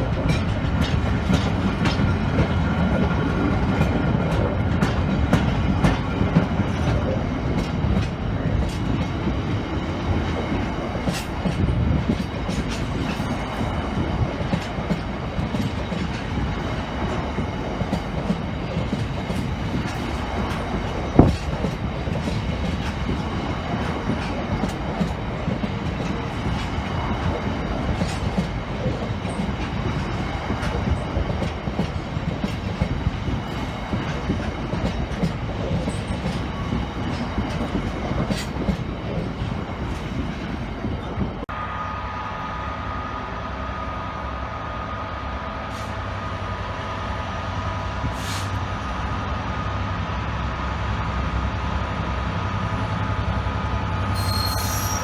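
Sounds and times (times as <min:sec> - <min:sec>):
train hum with whine: 0:00.0 - 0:55.0
train rumble: 0:00.0 - 0:55.0
wheels clicking on track: 0:10.0 - 0:41.3.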